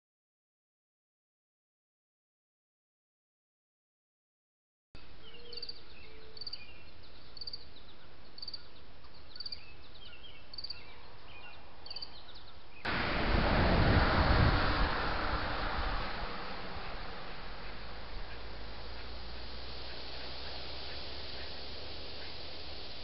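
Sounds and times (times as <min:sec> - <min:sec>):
soft bird chirps: 0:05.0 - 0:12.9, 0:15.4 - 0:23.0
small bird chirping: 0:05.2 - 0:12.9
loud rushing noise: 0:12.9 - 0:23.0.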